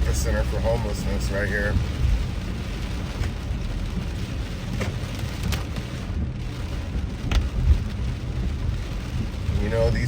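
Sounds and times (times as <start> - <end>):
car and road rumble: 0.0 - 10.0
rain hissing: 0.0 - 10.0.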